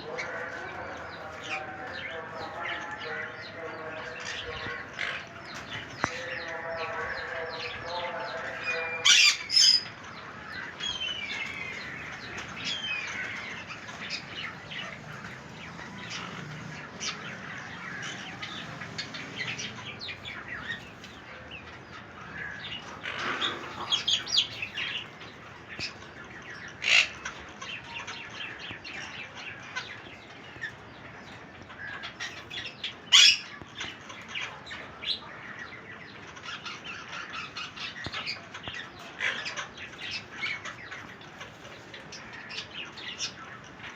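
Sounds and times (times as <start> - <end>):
parrots chirping and chattering: 0.0 - 43.9
parrot squawks: 9.0 - 9.9, 33.1 - 33.6.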